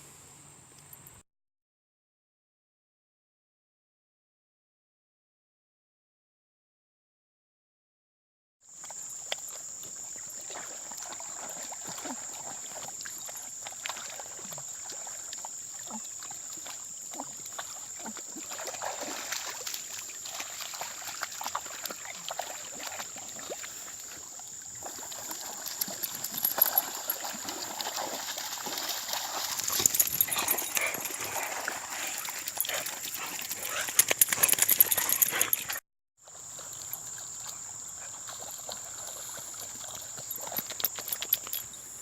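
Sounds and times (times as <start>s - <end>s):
water splashing and trickling: 8.8s - 42.0s.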